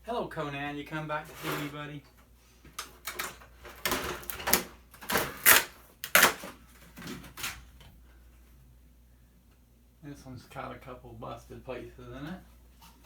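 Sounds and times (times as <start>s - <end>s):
plastic sheets rustling and clacking: 1.2s - 7.9s.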